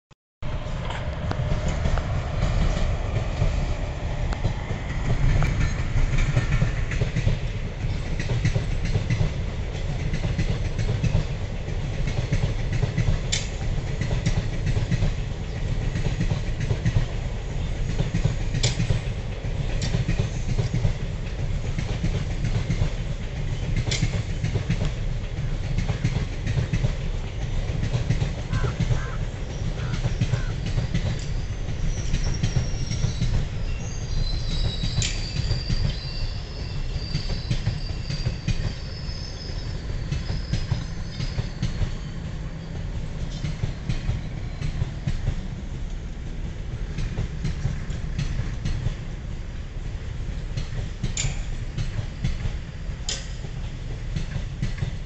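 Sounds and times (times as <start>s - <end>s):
train passing close by: 0.4s - 55.0s
wheels clattering over rail joints: 50.4s - 55.0s.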